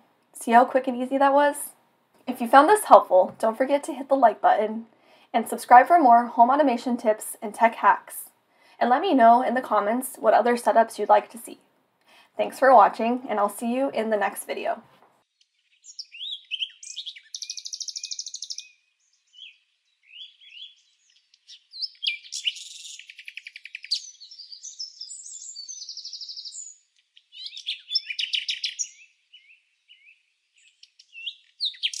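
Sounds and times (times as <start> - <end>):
songbirds singing: 15.2 - 32.0.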